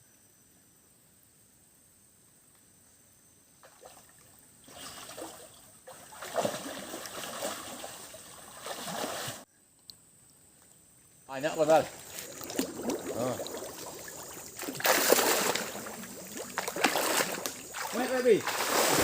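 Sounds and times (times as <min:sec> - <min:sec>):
water splashing in a river: 0:03.6 - 0:09.4, 0:11.5 - 0:19.0.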